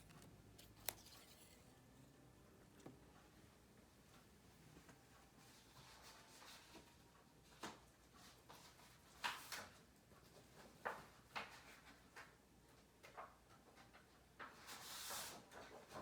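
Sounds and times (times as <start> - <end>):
paper rustling: 0.0 - 1.8.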